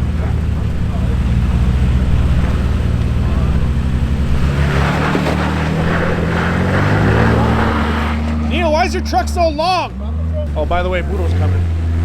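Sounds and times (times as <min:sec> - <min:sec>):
truck engine running at low revs: 0:00.0 - 0:12.0
rough scraping over rock: 0:03.6 - 0:08.7.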